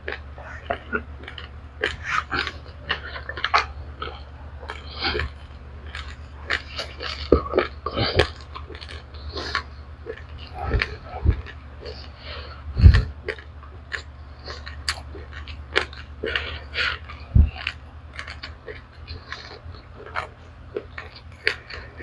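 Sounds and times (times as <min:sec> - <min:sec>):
crunching and chewing rice grains: 0:00.0 - 0:22.0
low steady hum: 0:00.0 - 0:22.0.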